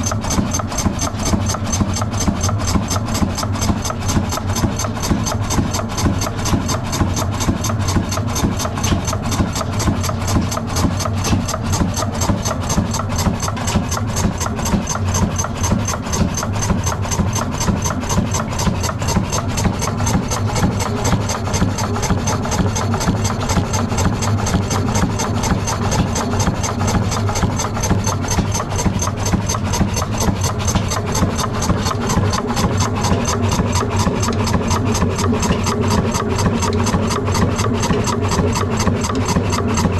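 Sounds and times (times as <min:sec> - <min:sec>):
diesel engine running: 0:08.3 - 0:39.9.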